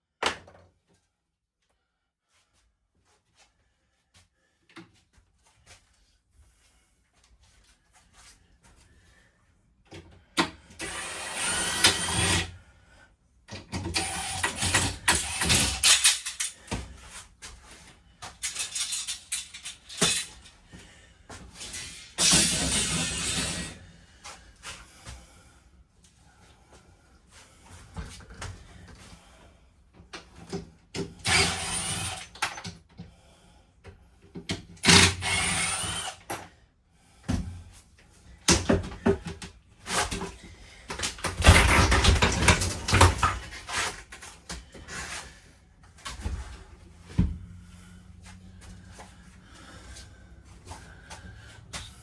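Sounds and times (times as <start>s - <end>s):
rasping tearing tool noise: 21.6s - 23.8s, 31.2s - 32.4s, 34.8s - 36.3s
knocks clicks and scrapes: 38.5s - 45.2s.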